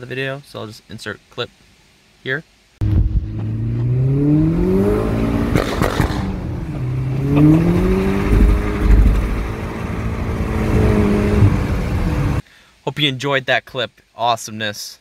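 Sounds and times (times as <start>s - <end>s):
car engine accelerating hard: 2.8s - 12.4s
exhaust crackles: 2.8s - 12.4s.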